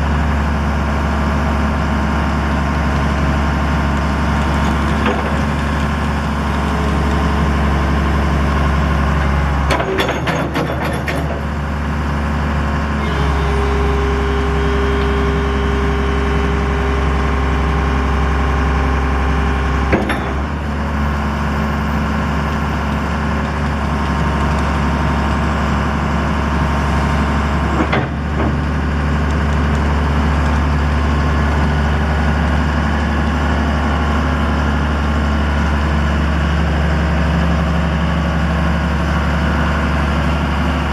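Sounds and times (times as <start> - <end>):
excavator diesel engine running: 0.0 - 40.9
steady high whine: 13.0 - 19.8.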